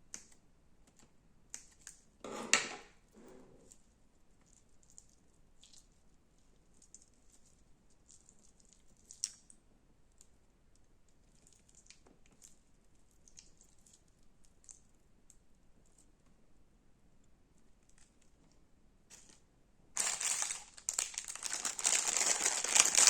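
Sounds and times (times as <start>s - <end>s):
slime clicking and crackling: 6.6s - 10.4s, 20.0s - 23.0s.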